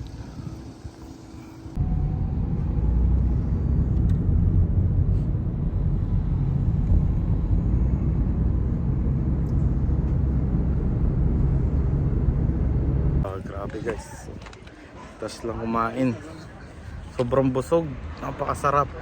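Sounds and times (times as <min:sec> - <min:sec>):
vehicle engine rumbling: 0:00.0 - 0:14.6.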